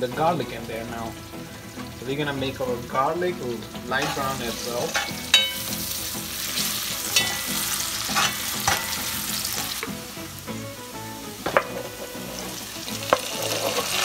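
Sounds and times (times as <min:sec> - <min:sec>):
onions sizzling in hot oil: 0:00.0 - 0:14.0
metal ladle knocking pot: 0:04.0 - 0:05.8, 0:07.1 - 0:10.0, 0:11.4 - 0:12.2, 0:13.0 - 0:14.0.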